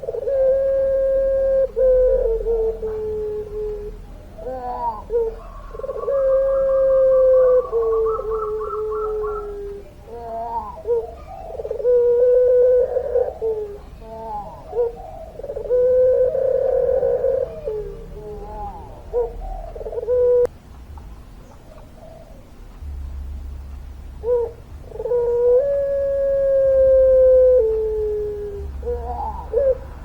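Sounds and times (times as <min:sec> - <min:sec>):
dove cooing: 0:00.0 - 0:20.5, 0:21.5 - 0:22.6, 0:24.2 - 0:30.0.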